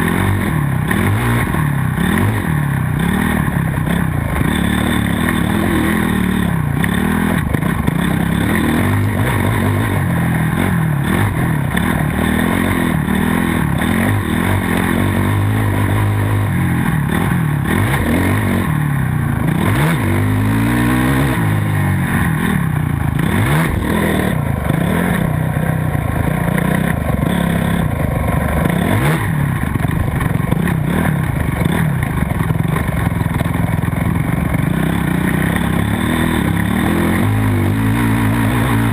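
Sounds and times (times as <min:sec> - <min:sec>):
motocross bike engines revving: 0:00.0 - 0:38.9.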